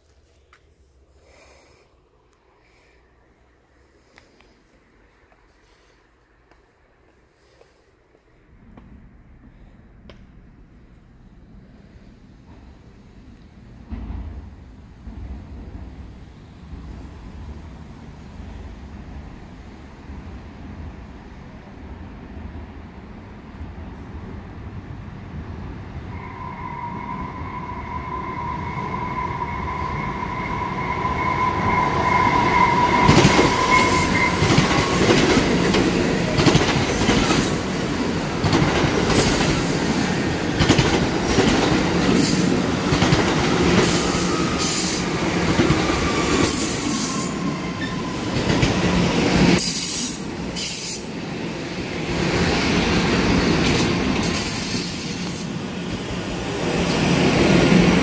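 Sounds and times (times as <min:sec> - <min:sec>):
train rumbling along platform: 0:00.0 - 0:58.0
train rumbling past: 0:01.1 - 0:58.0
train high-pitched squeal: 0:26.1 - 0:35.7, 0:43.5 - 0:48.6, 0:49.6 - 0:51.2.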